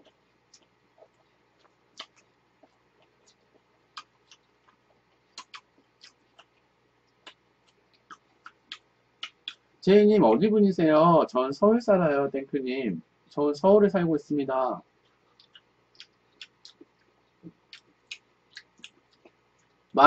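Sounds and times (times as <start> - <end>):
wet chewing mouth clicks: 0.0 - 9.7, 15.0 - 19.9.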